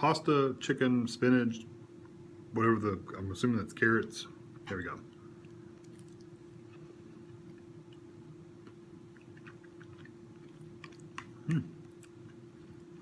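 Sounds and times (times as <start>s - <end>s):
steady low hum: 0.0s - 13.0s
mouth clicks and smacks: 5.1s - 12.8s
man humming mm: 11.4s - 11.8s.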